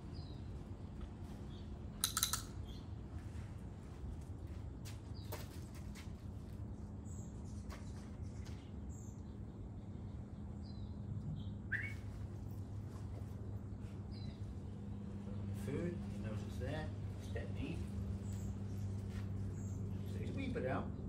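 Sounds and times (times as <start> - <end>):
steady low hum: 0.0 - 21.0
bird chirps: 8.9 - 12.2.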